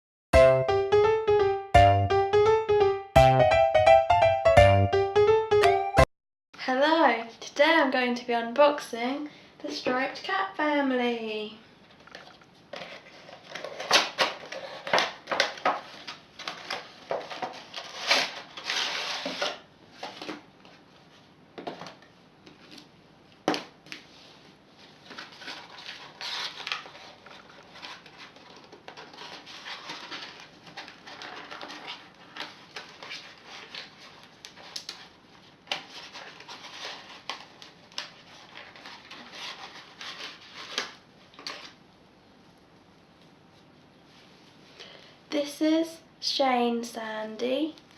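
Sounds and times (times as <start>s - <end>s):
packaging rustling and crinkling: 11.9s - 22.9s, 23.5s - 41.8s
sharp clicks of packaging: 12.1s - 20.4s, 25.0s - 41.8s.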